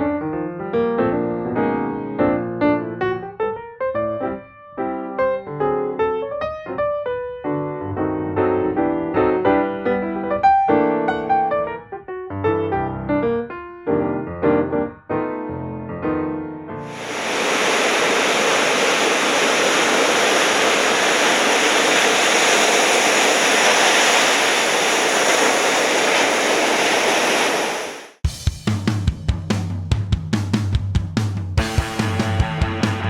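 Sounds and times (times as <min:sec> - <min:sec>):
piano music: 0:00.0 - 0:16.9
ocean surf rushing: 0:16.9 - 0:28.2.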